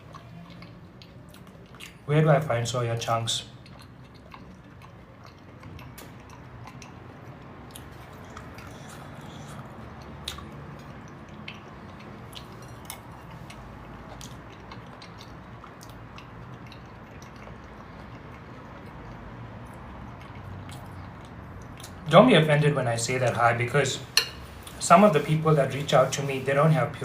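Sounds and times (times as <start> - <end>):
chewing soft food: 0.0 - 2.1, 3.0 - 22.1
wet mouth clicks: 0.0 - 2.1, 3.4 - 22.1
low steady hum: 0.0 - 27.0.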